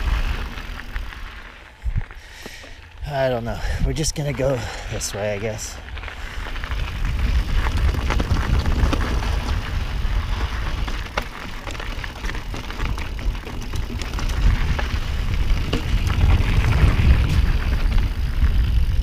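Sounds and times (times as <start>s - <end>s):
wind rumble on microphone: 0.0s - 2.3s, 2.9s - 19.0s
bike tyres on gravel: 0.0s - 19.0s
clicks and rattles of stones: 5.8s - 18.7s.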